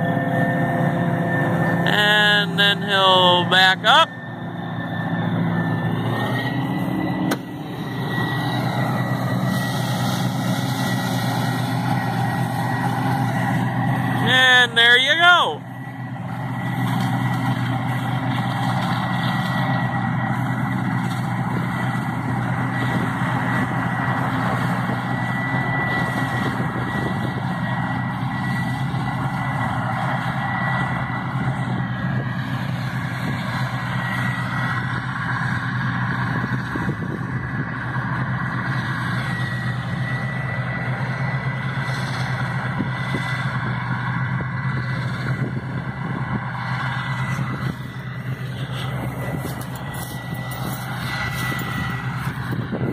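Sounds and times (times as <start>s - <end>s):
diesel engine hum: 0.0s - 52.9s
high-pitched whine: 0.0s - 52.9s.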